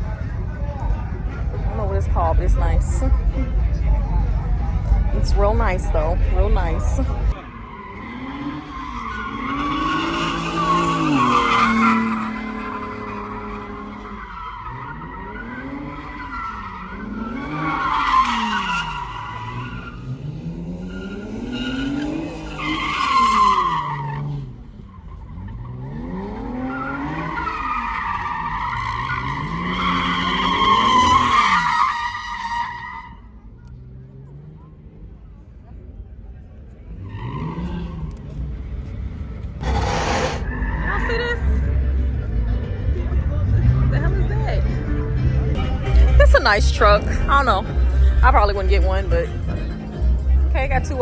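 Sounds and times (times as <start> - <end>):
tires squealing: 0.0 - 34.9, 36.7 - 51.0
engine revving: 7.9 - 31.7, 36.9 - 51.0.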